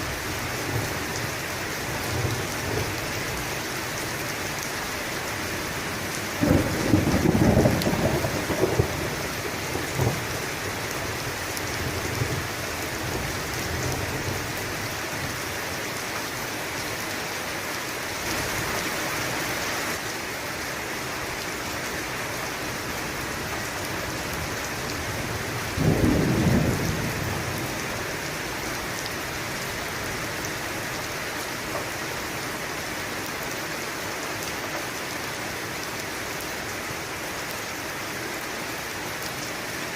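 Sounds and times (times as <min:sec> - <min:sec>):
heavy rain falling: 0:00.0 - 0:39.9
low rolls of thunder: 0:06.4 - 0:10.4, 0:25.2 - 0:28.3.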